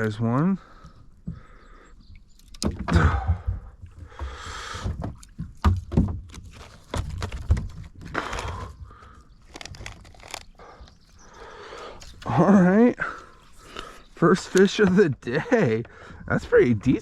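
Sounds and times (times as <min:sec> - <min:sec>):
knocks against a kayak: 0:02.6 - 0:07.7.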